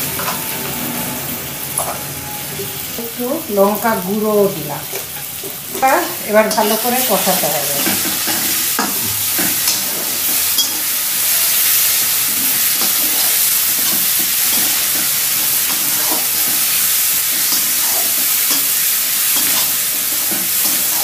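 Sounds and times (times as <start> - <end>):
onions sizzling in hot oil: 0.0 - 21.0
spatula scraping pan: 5.2 - 21.0.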